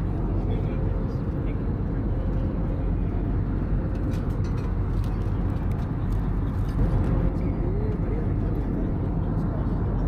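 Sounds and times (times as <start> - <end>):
jet airliner cabin rumble: 0.0 - 10.0.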